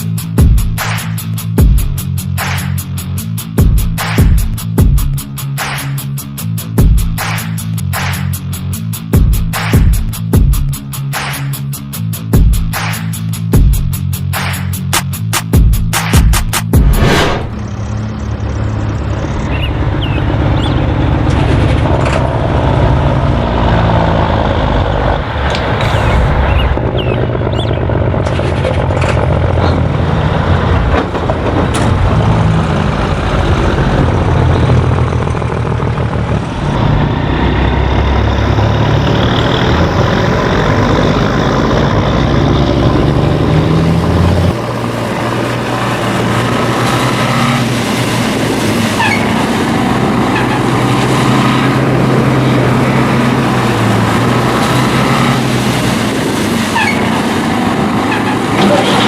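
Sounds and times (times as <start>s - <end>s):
tractor engine droning: 17.1s - 59.0s.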